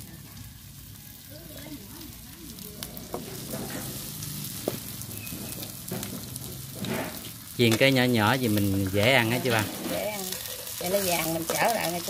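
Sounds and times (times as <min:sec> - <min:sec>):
batter frying in hot oil: 0:00.0 - 0:12.0
oil popping: 0:02.6 - 0:12.0.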